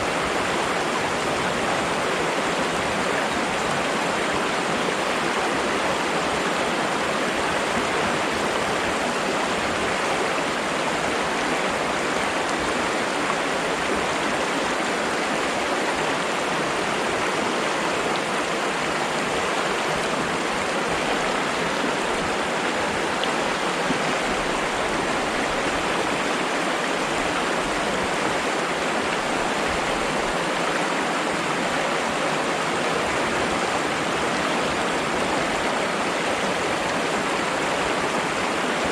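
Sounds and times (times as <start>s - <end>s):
water flowing: 0.0s - 38.9s.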